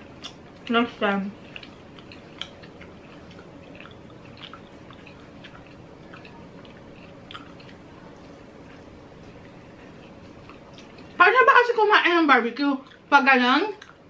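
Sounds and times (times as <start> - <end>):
wet mouth clicks chewing: 0.2 - 0.8, 1.4 - 11.2, 12.8 - 13.1, 13.7 - 14.0.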